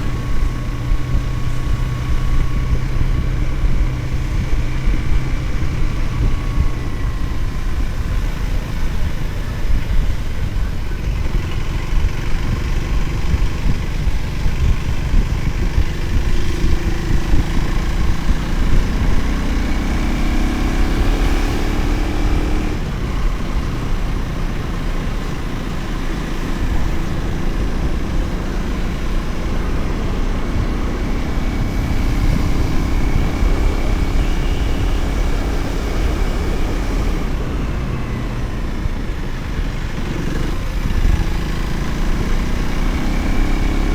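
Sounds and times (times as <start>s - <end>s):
motorcycle engine accelerating: 0.0s - 43.9s
wind rumble on microphone: 0.0s - 43.9s.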